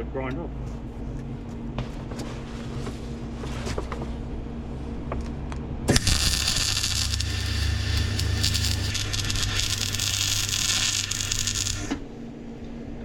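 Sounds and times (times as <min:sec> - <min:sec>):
welding arc crackling: 0:05.9 - 0:12.0
welder low hum: 0:05.9 - 0:12.2.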